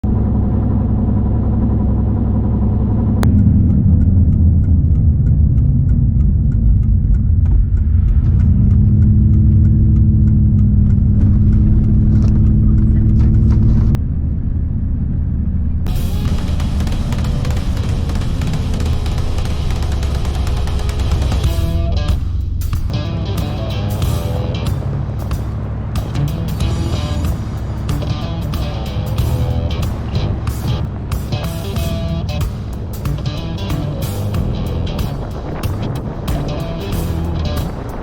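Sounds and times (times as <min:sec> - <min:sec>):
low road rumble: 0:00.0 - 0:38.0
vehicle engine drone: 0:00.0 - 0:38.0
music: 0:15.9 - 0:38.0.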